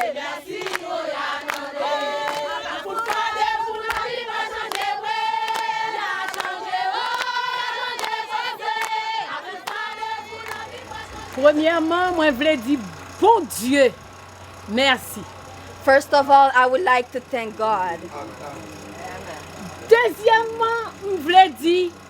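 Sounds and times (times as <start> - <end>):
group of voices singing: 0.0 - 13.9.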